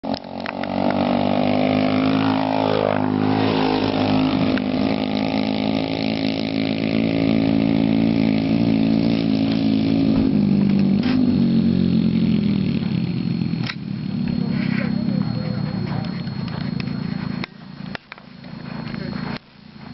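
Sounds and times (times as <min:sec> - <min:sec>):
small motorcycle engine running: 0:00.0 - 0:19.9.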